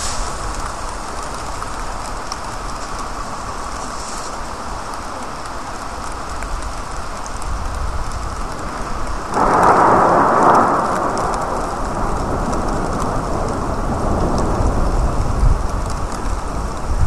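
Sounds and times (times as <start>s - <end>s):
sudden rush of noise: 0.0s - 1.8s
rain falling on wet street: 0.0s - 17.0s.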